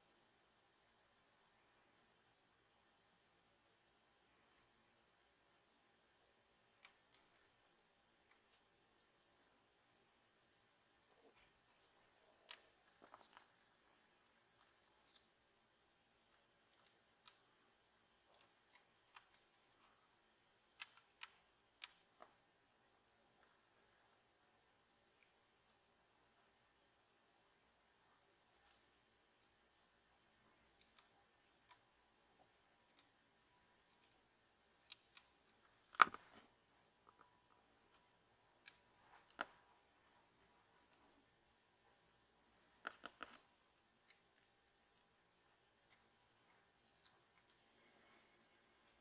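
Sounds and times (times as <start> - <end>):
small objects clicking and snipping: 6.8 - 8.8, 16.3 - 22.3, 30.6 - 32.0, 33.8 - 37.3, 37.9 - 39.6, 42.8 - 47.6.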